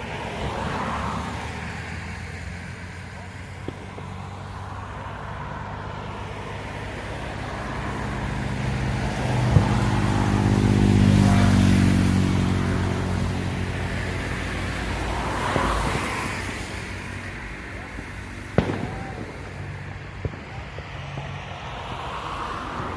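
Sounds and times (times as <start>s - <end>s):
vehicle engine passing by: 0.4s - 22.9s
sharp crack: 3.3s - 4.8s, 9.4s - 10.4s, 17.8s - 21.9s.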